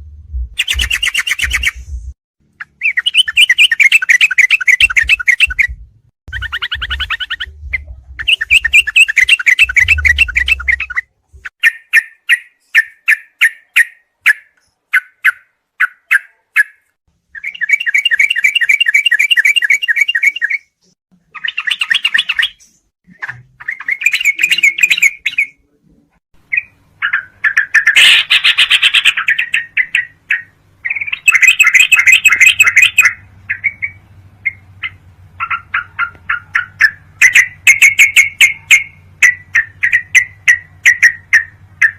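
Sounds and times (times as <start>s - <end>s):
bird chattering trills: 0.6s - 1.8s, 2.6s - 5.7s, 6.3s - 16.8s, 21.4s - 25.6s, 26.5s - 41.9s
faint low hum: 4.9s - 11.5s.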